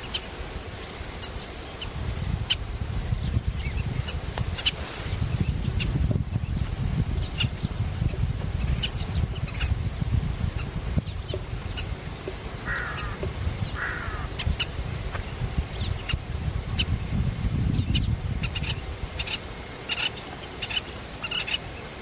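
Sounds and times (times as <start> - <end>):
birds chirping: 10.5 - 22.0
harsh raspy bird calls: 12.6 - 14.6.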